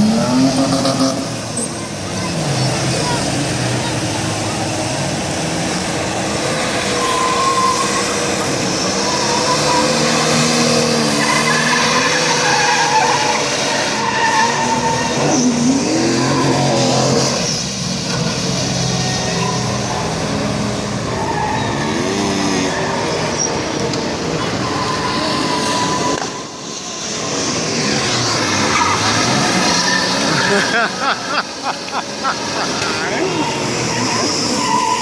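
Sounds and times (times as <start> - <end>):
car engine revving: 0.0 - 35.0
tires squealing: 0.0 - 35.0.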